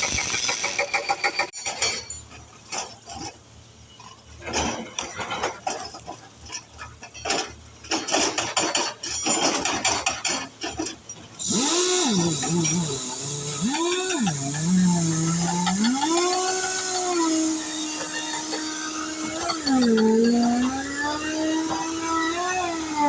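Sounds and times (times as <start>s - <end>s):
loud steady hiss: 0.0s - 1.5s, 11.2s - 23.0s
metallic clanks and knocks: 4.4s - 11.3s
whine rising and falling: 11.4s - 21.9s.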